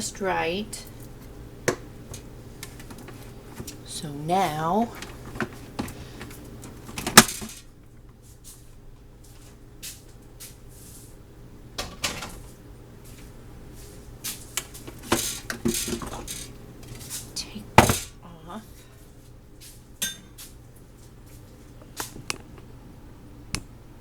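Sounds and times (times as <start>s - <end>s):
low steady hum: 0.0s - 9.8s, 10.7s - 24.0s
dishes and utensils clinking: 14.9s - 16.5s, 20.0s - 20.4s.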